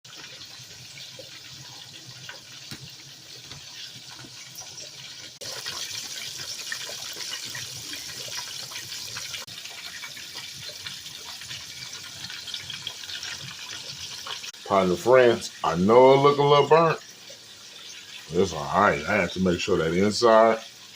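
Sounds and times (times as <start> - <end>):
chicken sizzling in hot oil: 0.0 - 20.9
oil crackles and pops: 0.1 - 14.8.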